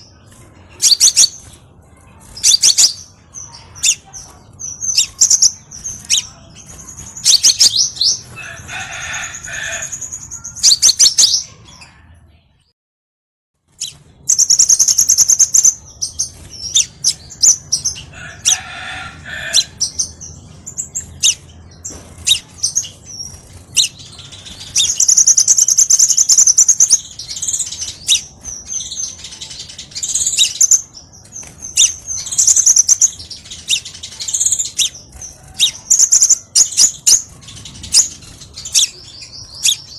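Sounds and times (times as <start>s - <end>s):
bird chirping and trilling: 0.0s - 12.3s, 13.7s - 39.9s.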